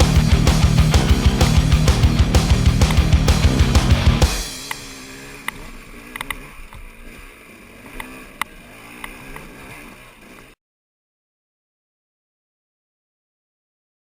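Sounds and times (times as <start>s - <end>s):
sharp clicks: 0.0s - 4.8s
dirt bike engine at low revs: 0.0s - 10.6s.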